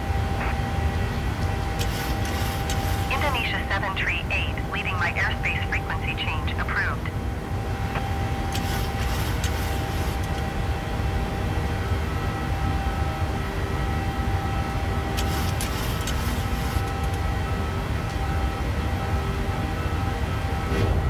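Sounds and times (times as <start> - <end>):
faint steady tones: 0.0 - 11.3, 11.9 - 20.6
aircraft engines droning: 0.0 - 21.0.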